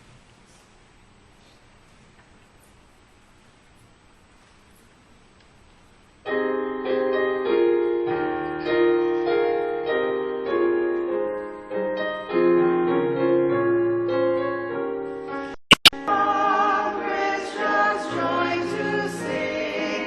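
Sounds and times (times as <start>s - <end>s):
keyboard playing slow chords: 6.3s - 15.5s.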